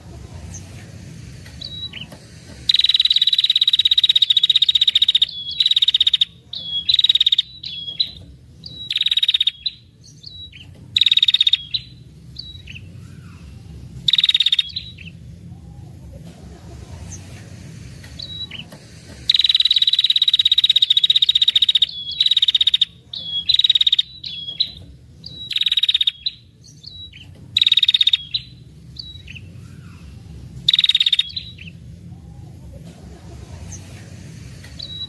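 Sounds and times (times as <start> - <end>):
bird single chirps: 1.6 - 13.4, 14.1 - 15.1, 19.3 - 30.0, 30.7 - 31.7, 34.8 - 35.0
bird high-pitched trills: 1.6 - 16.0, 19.3 - 32.6, 34.8 - 35.0.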